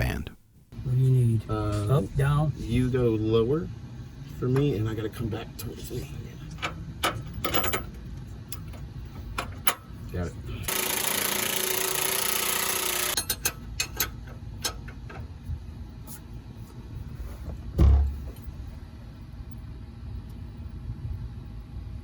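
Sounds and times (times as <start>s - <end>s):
power tool running: 10.7s - 13.2s
heavy low thump: 17.7s - 18.3s.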